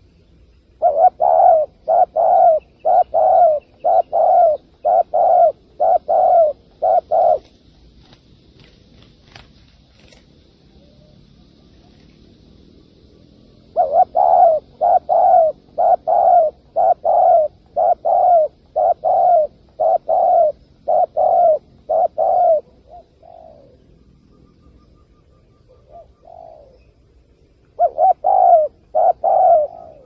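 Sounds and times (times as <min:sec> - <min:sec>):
dove cooing: 0:00.7 - 0:08.7, 0:13.5 - 0:23.9, 0:25.0 - 0:27.0, 0:27.8 - 0:30.0.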